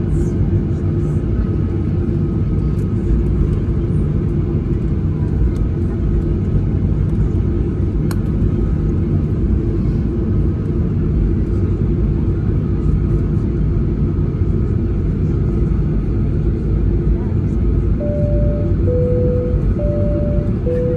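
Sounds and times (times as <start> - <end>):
jet engine cabin rumble: 0.0 - 20.9
faint high tone: 18.0 - 20.9.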